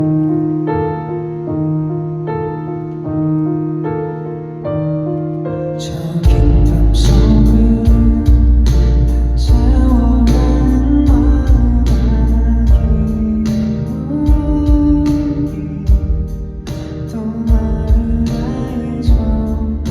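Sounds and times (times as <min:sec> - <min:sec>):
electric piano chords: 0:00.0 - 0:19.9
full band with drums and bass: 0:06.3 - 0:19.9.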